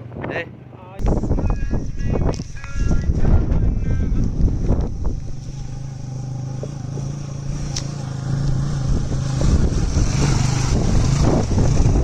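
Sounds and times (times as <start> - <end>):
motor scooter engine running: 3.1 - 12.0.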